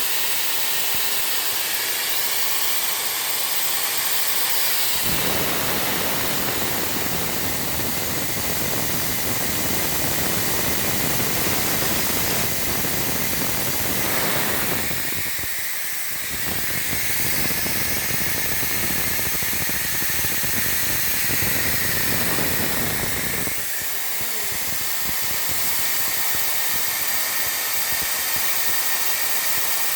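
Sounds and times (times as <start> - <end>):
hissing machinery: 0.0 - 29.6.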